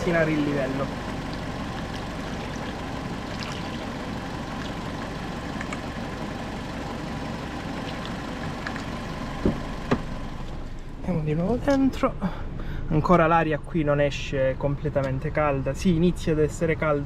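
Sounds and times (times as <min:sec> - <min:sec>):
petrol engine idling: 0:00.0 - 0:12.9.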